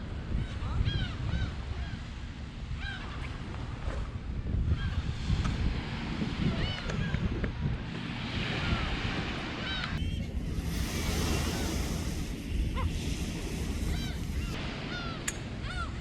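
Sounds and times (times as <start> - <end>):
wind buffeting microphone: 0.0 - 14.9
sea waves washing on beach: 7.9 - 14.9.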